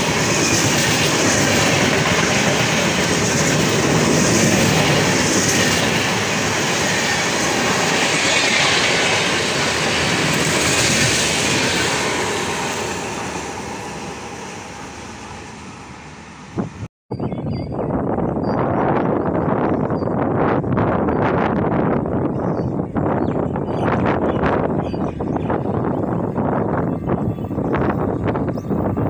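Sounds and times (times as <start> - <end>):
train wheels rattling over rails: 0.0 - 14.1.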